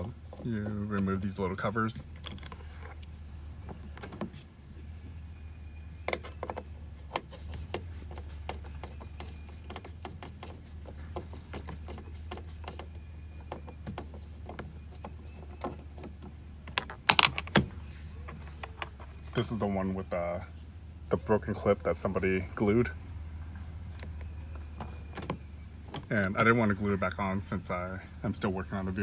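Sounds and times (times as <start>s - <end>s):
steady low hum: 0.0s - 29.0s
clicks and scrapes on plastic trim: 6.1s - 19.1s.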